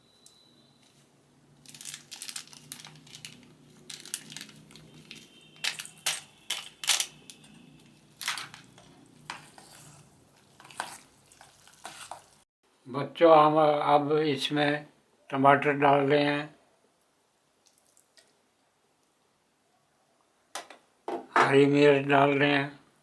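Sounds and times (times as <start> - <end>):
sachet crinkling and tearing: 1.6 - 8.8
stirring noodles in a bowl: 7.8 - 12.4.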